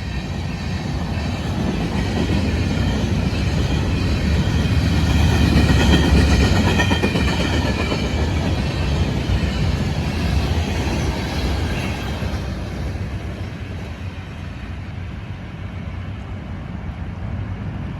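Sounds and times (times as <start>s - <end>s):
train wheels rumbling on rails: 0.0s - 17.9s.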